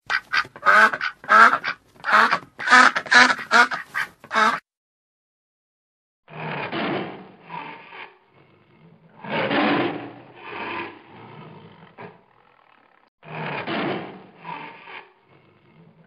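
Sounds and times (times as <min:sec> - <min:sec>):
duck quacking: 0:00.1 - 0:04.6.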